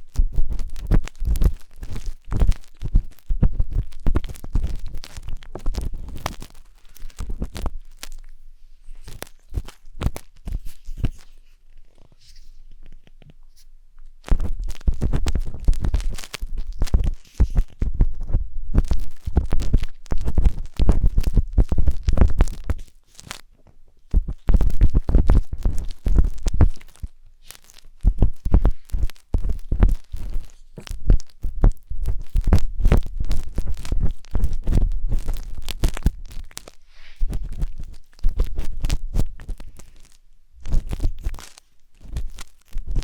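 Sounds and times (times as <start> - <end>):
skewer scraping microphone: 27.9 - 39.8.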